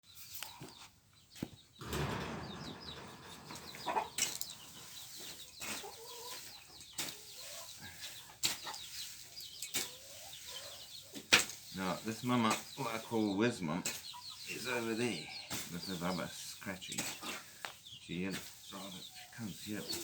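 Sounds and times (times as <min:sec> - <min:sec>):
chicks peeping: 0:00.1 - 0:20.0
sharp knocks: 0:01.8 - 0:05.0
rustling: 0:01.8 - 0:07.3
hen clucking: 0:01.8 - 0:16.4.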